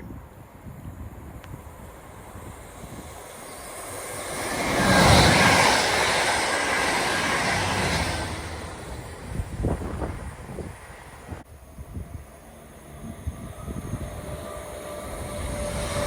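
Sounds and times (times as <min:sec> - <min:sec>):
train passing at speed: 0:00.0 - 0:16.0.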